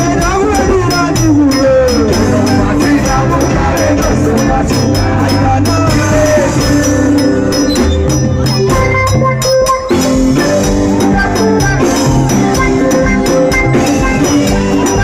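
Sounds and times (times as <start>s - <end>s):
high percussion ticking: 0.0s - 15.0s
live band music: 0.0s - 15.0s
sustained bass: 0.0s - 15.0s
gliding melodic lines: 6.6s - 15.0s.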